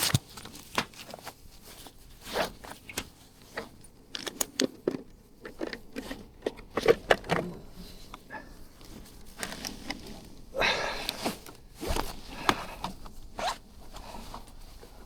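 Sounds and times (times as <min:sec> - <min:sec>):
gear clicking scraping and rustling: 0:00.0 - 0:15.0
zipper being worked: 0:13.4 - 0:13.6.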